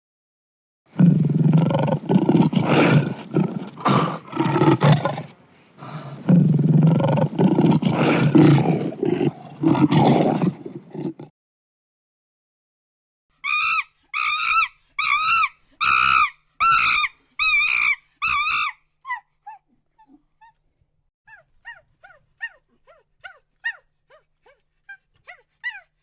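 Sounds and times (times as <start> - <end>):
big cat roaring and growling: 0.9 - 11.3.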